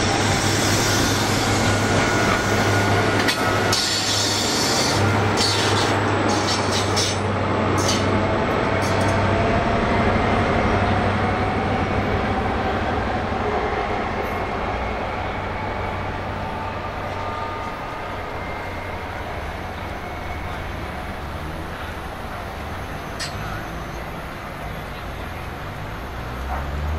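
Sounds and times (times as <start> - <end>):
train rumbling past: 0.0 - 26.9
sharp clicks of train wheels: 2.0 - 9.3.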